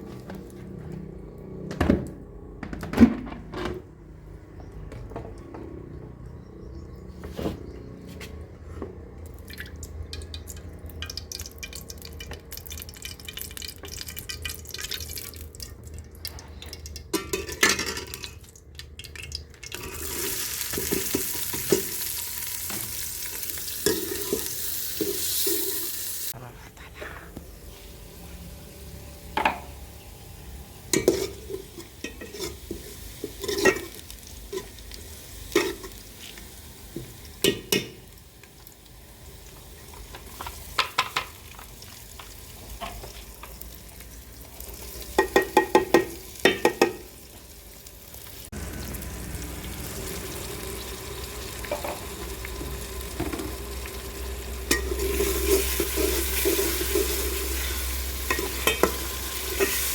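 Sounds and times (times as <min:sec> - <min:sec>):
chicken frying sizzle: 0:09.3 - 0:26.4, 0:27.6 - 0:59.9
spoon scraping pan: 0:31.0 - 0:34.0.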